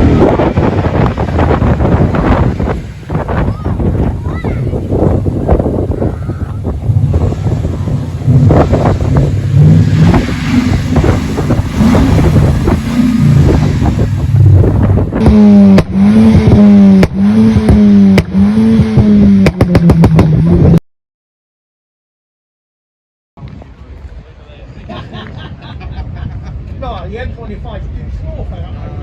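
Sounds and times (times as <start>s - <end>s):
car engine revving: 0.0s - 20.8s
sharp exhaust cracks: 0.0s - 20.8s.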